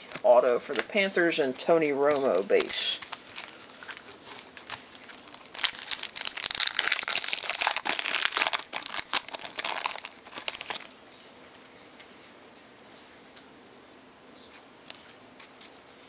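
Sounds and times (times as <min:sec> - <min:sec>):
wrapper crinkling and tearing: 0:02.0 - 0:10.9.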